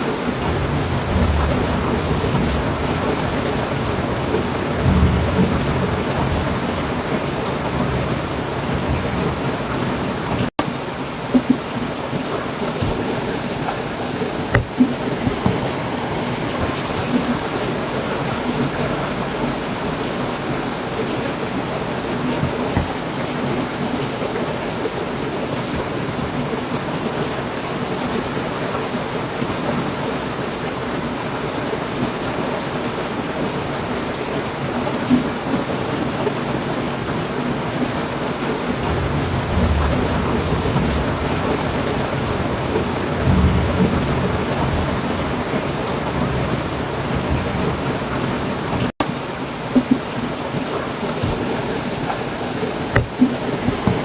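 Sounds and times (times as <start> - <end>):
heavy rain falling: 0.0 - 54.0
low rumbles of thunder: 0.2 - 10.5, 38.7 - 48.9.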